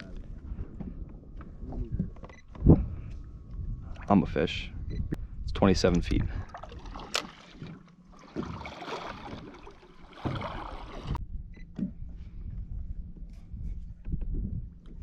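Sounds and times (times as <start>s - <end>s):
water splashing around a kayak: 6.2s - 11.2s.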